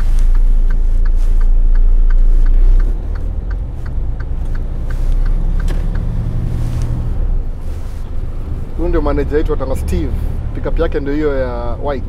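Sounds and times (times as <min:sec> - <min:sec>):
steady ticking: 0:00.0 - 0:07.1
diesel truck engine rumbling: 0:00.0 - 0:12.0.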